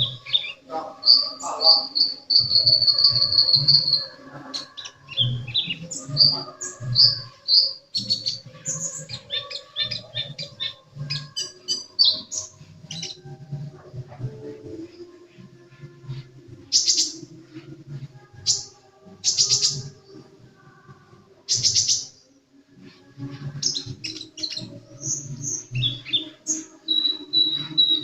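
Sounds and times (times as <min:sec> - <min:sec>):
bird singing high thin whistles: 0:00.0 - 0:13.2, 0:23.6 - 0:28.0.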